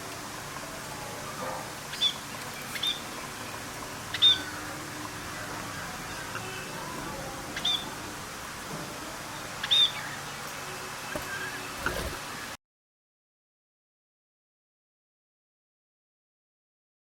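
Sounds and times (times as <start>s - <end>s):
bird chirping: 4.1s - 4.6s.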